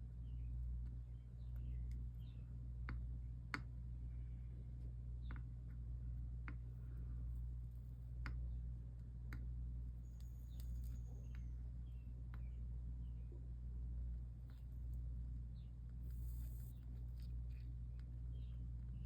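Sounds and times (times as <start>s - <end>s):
steady low hum: 0.0s - 19.0s
light clicks and taps: 4.8s - 5.8s, 7.8s - 9.5s.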